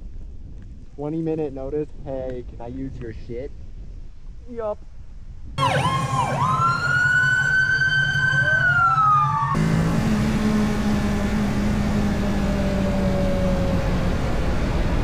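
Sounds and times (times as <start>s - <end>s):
motorcycle engine drone: 5.6s - 15.0s
wailing siren-like tone: 5.6s - 15.0s
wind rush: 10.0s - 15.0s.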